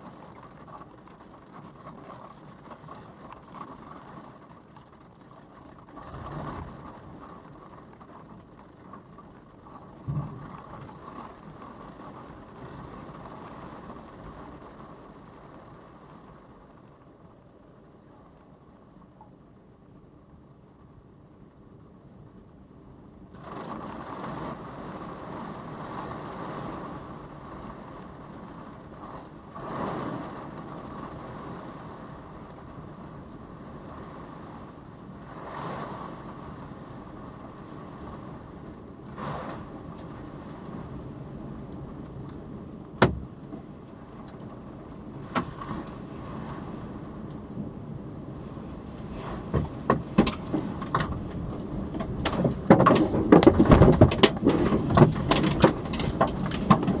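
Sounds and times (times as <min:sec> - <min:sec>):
debris knocking: 0:52.1 - 0:57.0.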